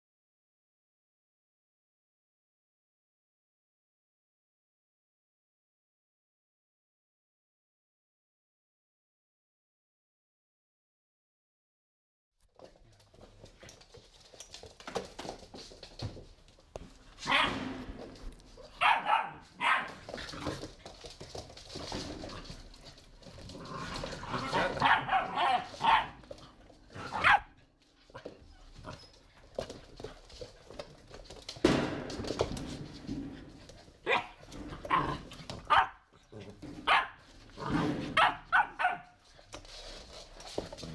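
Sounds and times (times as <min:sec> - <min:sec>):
puppies barking and yipping: 0:18.8 - 0:20.1, 0:24.5 - 0:26.3.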